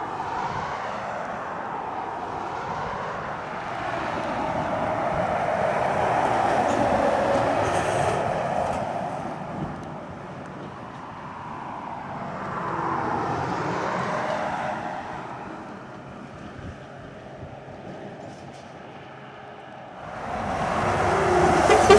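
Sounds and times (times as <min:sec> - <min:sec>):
diesel trucks climbing under load: 0:20.0 - 0:21.9.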